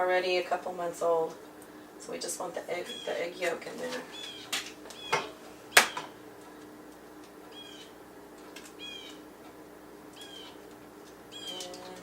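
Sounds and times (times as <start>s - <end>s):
high bird chirps: 4.1s - 5.3s, 7.5s - 7.9s, 8.8s - 9.2s, 10.2s - 10.6s, 11.3s - 11.7s.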